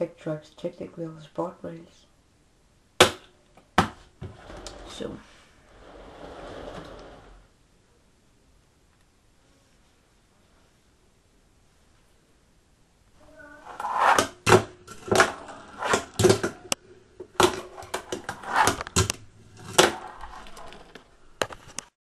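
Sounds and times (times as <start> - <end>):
fingerboard wheels rolling: 4.2 - 7.5, 13.6 - 21.9
fingerboard deck clacking: 13.7 - 21.0.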